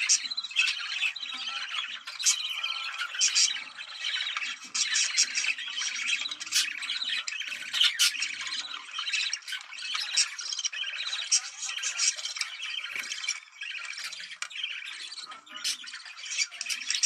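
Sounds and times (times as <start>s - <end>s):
budgerigars chattering and warbling: 0.0s - 17.0s.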